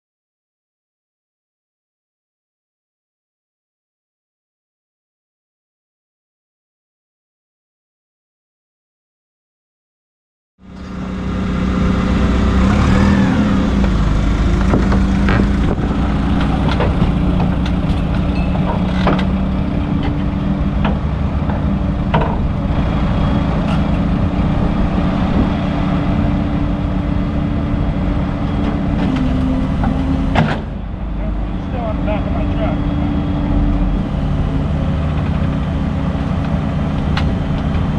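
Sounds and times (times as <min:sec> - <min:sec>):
truck engine running: 0:10.6 - 0:37.9.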